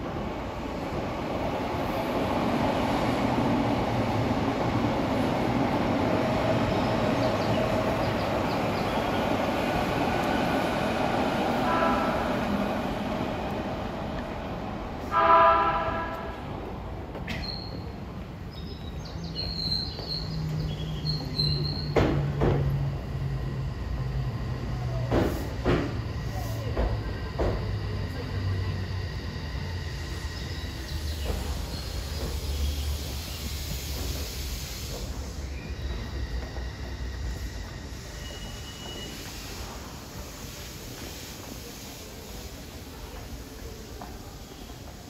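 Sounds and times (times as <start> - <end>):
train rumbling: 0.0 - 45.0
train horn blasts: 11.6 - 12.6, 15.1 - 16.4.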